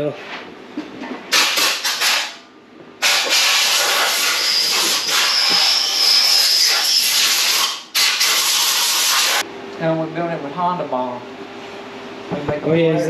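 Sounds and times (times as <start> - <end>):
pressurized spray hissing: 3.0 - 9.4
faint high whistle: 4.3 - 7.2.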